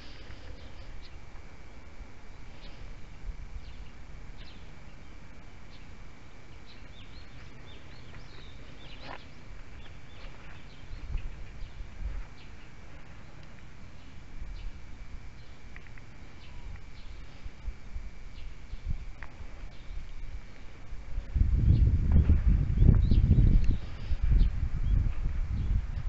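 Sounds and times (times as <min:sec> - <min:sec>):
small birds chirping: 0:00.0 - 0:26.0
low rumble: 0:13.6 - 0:26.0.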